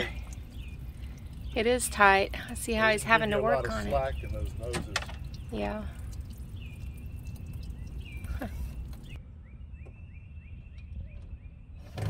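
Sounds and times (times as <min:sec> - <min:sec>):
low outdoor rumble: 0:00.0 - 0:09.5
bird chirping: 0:00.0 - 0:12.0.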